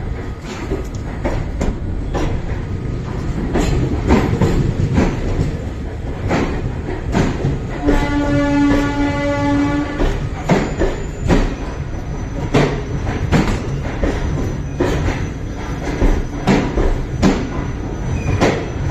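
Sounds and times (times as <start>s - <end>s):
train wheels clickety-clack: 0.0s - 18.9s
train horn blast: 7.8s - 10.3s.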